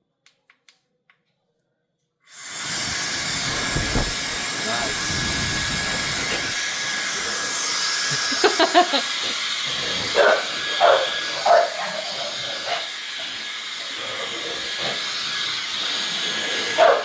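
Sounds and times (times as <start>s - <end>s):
hairdryer air rush with whine: 2.3s - 17.0s.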